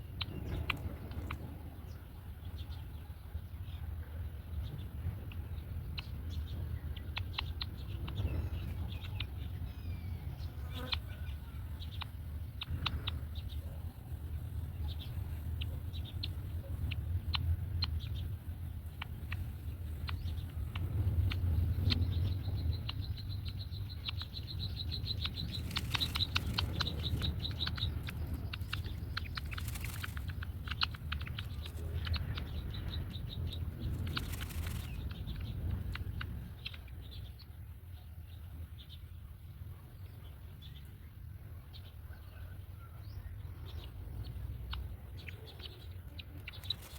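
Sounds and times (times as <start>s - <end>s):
steady low rumble: 0.0s - 46.9s
high ticking bird calls: 4.6s - 37.7s, 43.1s - 46.9s
birds rustling in nest: 25.2s - 32.0s, 33.7s - 35.2s, 46.4s - 46.9s.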